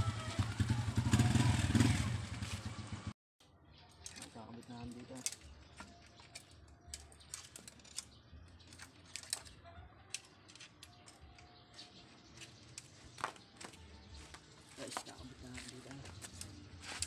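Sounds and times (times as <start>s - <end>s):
small clicks of brake cable handling: 4.0s - 11.5s.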